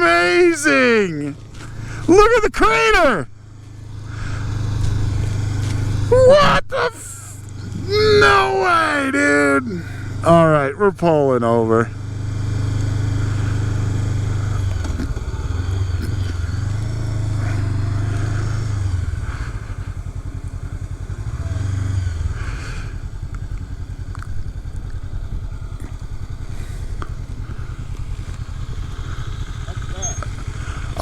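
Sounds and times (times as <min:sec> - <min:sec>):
motorcycle engine slowing and idling: 0:00.0 - 0:31.0.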